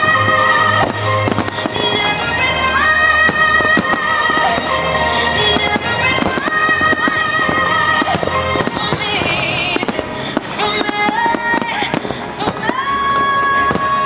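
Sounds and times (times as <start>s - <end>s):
fireworks popping and crackling: 0.0s - 14.0s
loud music with held notes: 0.0s - 14.0s.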